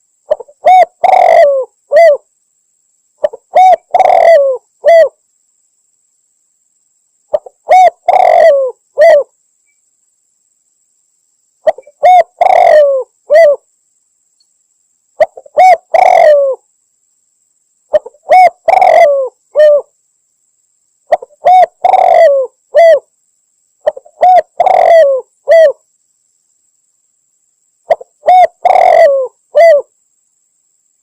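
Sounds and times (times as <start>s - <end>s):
dove cooing: 0.3s - 2.3s, 3.2s - 5.2s, 7.3s - 9.3s, 11.6s - 13.6s, 15.2s - 16.6s, 17.9s - 19.9s, 21.1s - 23.1s, 23.8s - 25.8s, 27.9s - 29.9s.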